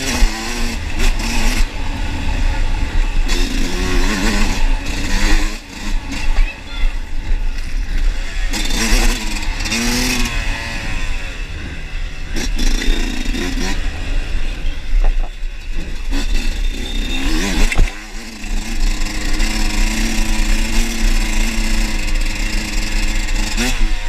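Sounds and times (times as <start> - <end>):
motorcycle engine revving: 0.0 - 24.0
heavy low rumble: 13.8 - 16.2
knocks and clatter: 14.9 - 16.6, 17.3 - 18.0.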